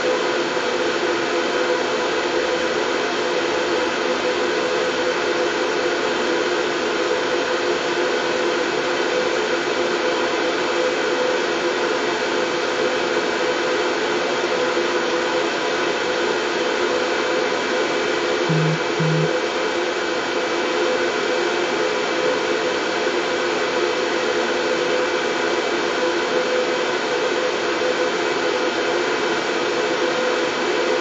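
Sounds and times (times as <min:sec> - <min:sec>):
faint hum: 0:18.5 - 0:19.3
white noise hiss: 0:18.5 - 0:19.3.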